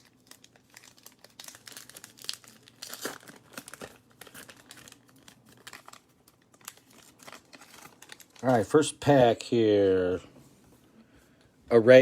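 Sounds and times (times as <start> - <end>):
wrapper crinkling and tearing: 0.0 - 9.2.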